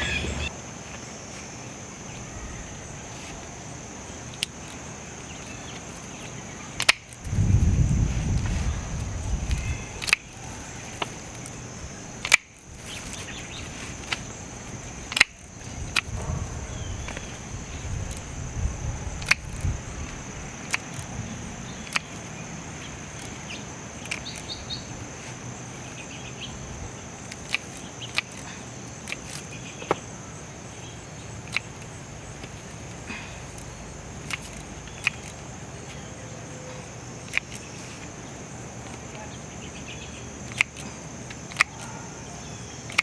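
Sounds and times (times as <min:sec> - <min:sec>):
crickets chirping: 0:00.0 - 0:43.0
foliage rustling: 0:00.0 - 0:43.0
hand pruners snipping: 0:02.9 - 0:07.4, 0:08.3 - 0:30.0, 0:31.4 - 0:36.1, 0:36.7 - 0:43.0.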